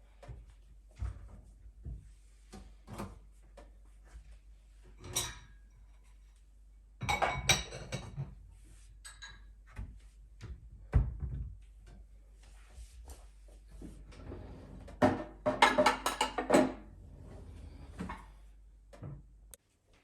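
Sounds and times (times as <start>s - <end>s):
dishes and utensils clinking: 5.0s - 5.6s, 7.0s - 8.3s, 9.0s - 9.6s, 15.5s - 16.8s.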